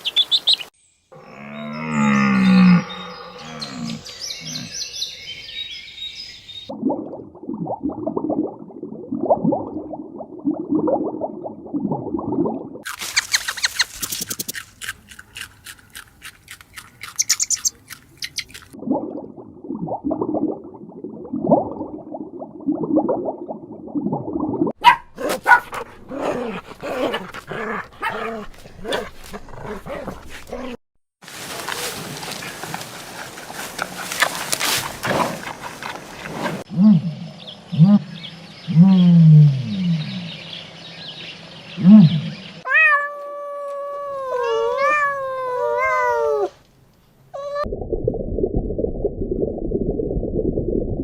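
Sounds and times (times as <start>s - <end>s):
high chirping: 0.0s - 0.8s, 13.0s - 14.6s, 17.0s - 18.6s
low repeated animal calls: 1.1s - 5.5s
low sweeping animal call: 1.2s - 5.7s.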